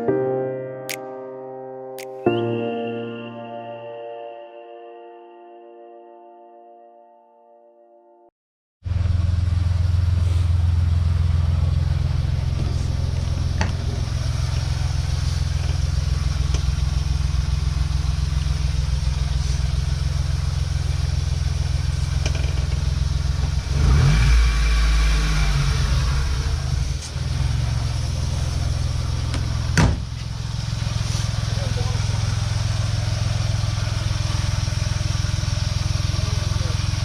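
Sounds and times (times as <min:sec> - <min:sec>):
car engine idling: 0:08.9 - 0:37.0.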